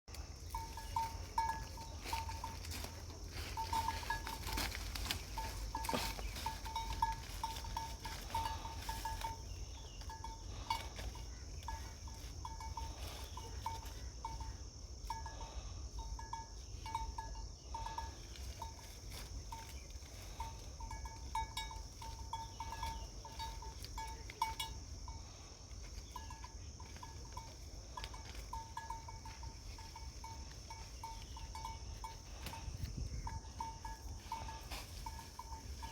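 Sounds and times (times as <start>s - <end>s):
repeated tonal bird notes: 0.1s - 35.9s
low wind rumble: 29.3s - 35.9s.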